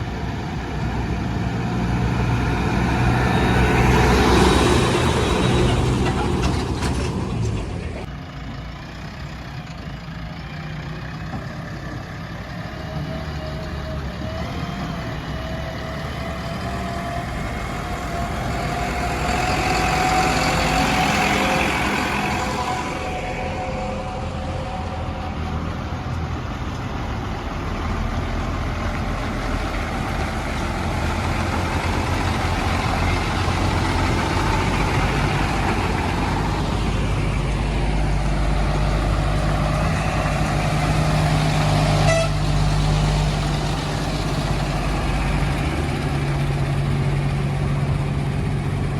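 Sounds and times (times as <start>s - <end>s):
heavy diesel engines running: 0.0s - 48.9s
rising whine: 13.6s - 48.4s.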